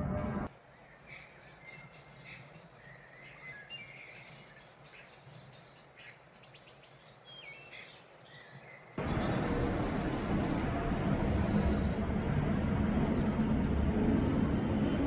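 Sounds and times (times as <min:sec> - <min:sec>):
loud steady noise: 0:00.0 - 0:00.5, 0:09.0 - 0:15.0
songbirds chirping: 0:00.2 - 0:12.0.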